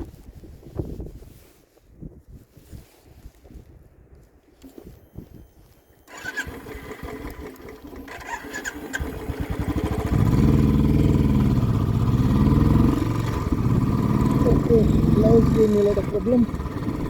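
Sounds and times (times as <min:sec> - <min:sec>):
motorcycle engine revving: 0:06.1 - 0:17.0.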